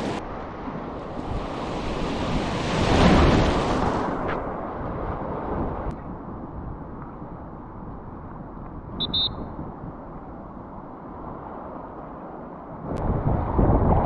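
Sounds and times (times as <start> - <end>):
river water rushing: 0.0 - 4.6
wind buffeting microphone: 0.0 - 11.5, 12.5 - 14.0
high double chirp: 9.0 - 9.5.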